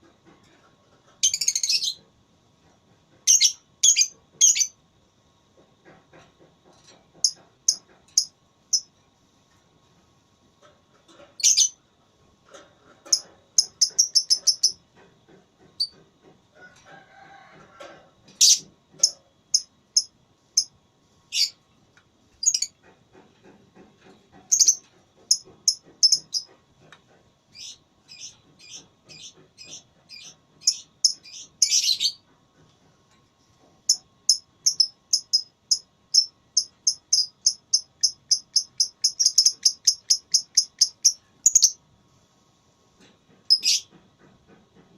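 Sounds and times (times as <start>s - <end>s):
lovebird chirping rapidly: 34.3s - 41.8s, 43.5s - 43.8s.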